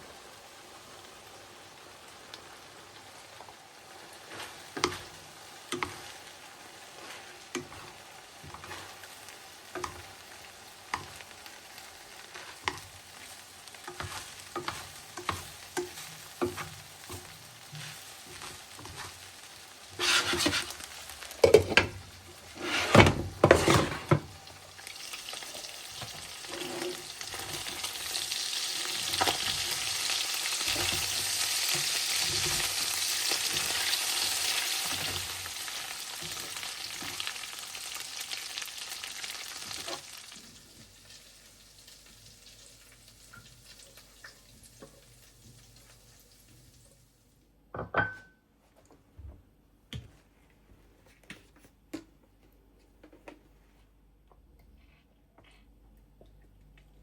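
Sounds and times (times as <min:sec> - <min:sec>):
hot oil sizzling: 0:00.0 - 0:47.3
utensil tapping and stirring in pan: 0:03.3 - 0:38.2.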